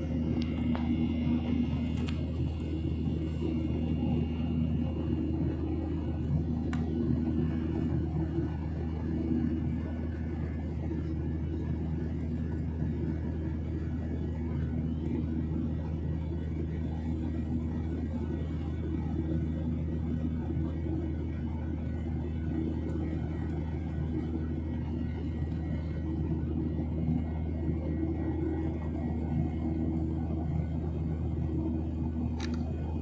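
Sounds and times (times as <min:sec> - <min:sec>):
airliner cabin engine drone: 0:00.0 - 0:33.0
faint click: 0:01.9 - 0:02.2, 0:32.4 - 0:32.7.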